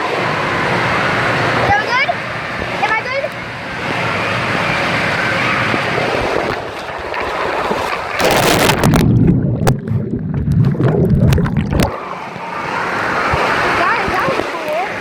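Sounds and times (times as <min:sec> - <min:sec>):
rushing water: 0:00.0 - 0:15.0
splashing buffeting at microphone: 0:03.8 - 0:15.0.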